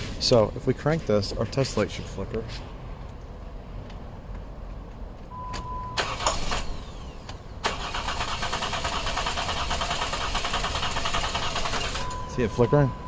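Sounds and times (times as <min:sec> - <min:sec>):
short beep: 0:05.3 - 0:06.1, 0:12.0 - 0:13.0
car engine cranking on starter: 0:06.0 - 0:12.2.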